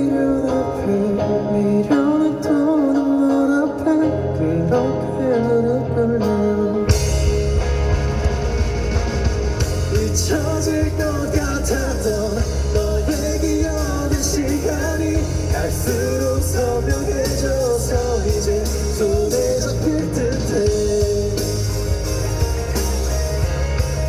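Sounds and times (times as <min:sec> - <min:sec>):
bending lead guitar melody: 0:00.0 - 0:24.0
live rock band playing: 0:00.0 - 0:24.0.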